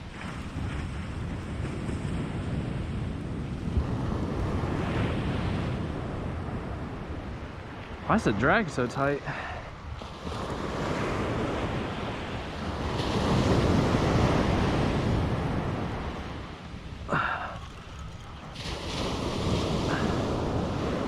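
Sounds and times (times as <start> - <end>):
wind buffeting microphone: 0.0 - 8.7, 9.6 - 21.0
surf washing on beach: 0.0 - 21.0.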